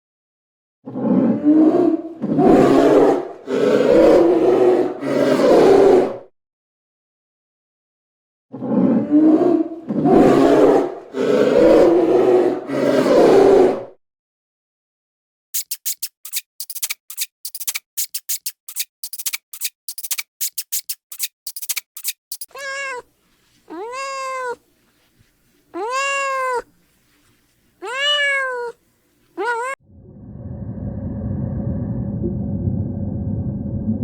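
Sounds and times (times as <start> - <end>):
animal clicking: 15.6 - 22.5
meow-like calls: 22.5 - 23.1, 23.7 - 24.6, 25.8 - 26.7, 27.8 - 28.8, 29.4 - 29.8.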